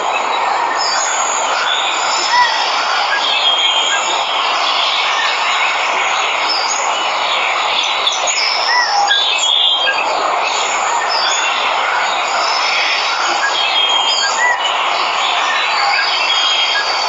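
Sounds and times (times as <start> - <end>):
birds chirping and whistling: 11.0 - 17.0.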